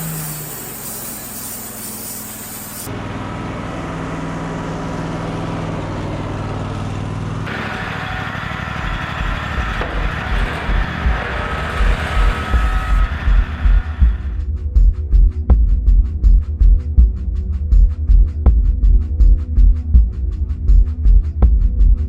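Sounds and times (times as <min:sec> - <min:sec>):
band blade cutting log: 0:00.0 - 0:02.9
band sawmill running: 0:00.0 - 0:14.4
low pulsing music beat: 0:08.8 - 0:22.0.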